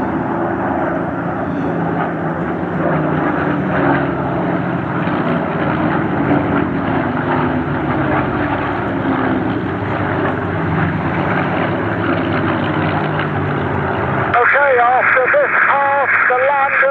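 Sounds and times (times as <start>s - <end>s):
aircraft piston engines: 0.0s - 16.9s.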